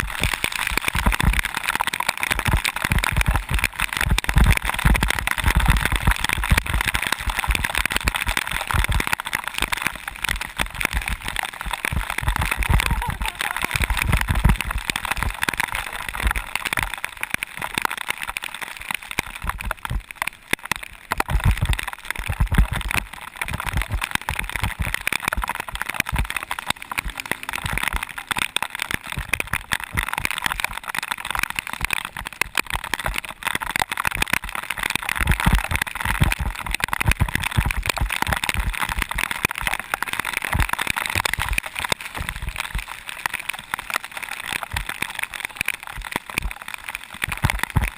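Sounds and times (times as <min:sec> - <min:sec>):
wind on the camera: 0:10.2 - 0:16.9, 0:21.2 - 0:30.8.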